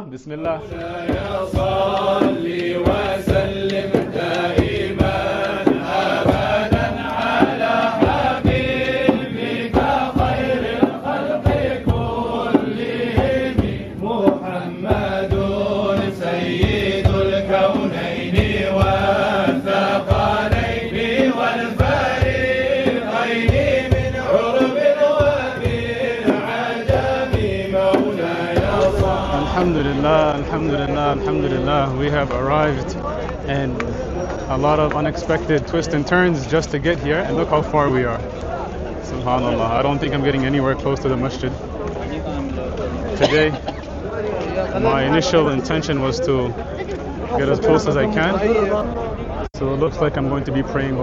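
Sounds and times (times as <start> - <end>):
sharp beats: 0.3 - 32.9
male voices chanting: 0.3 - 34.2.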